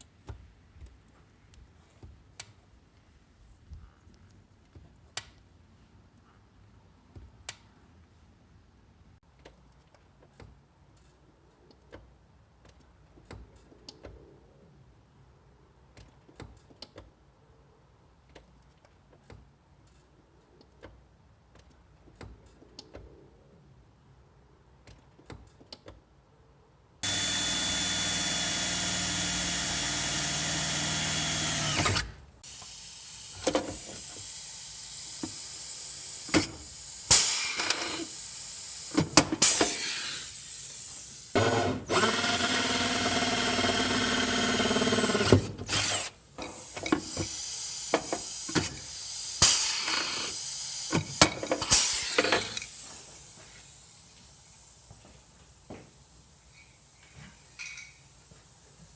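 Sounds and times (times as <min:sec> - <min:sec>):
electric drill whining: 0:27.0 - 0:53.4.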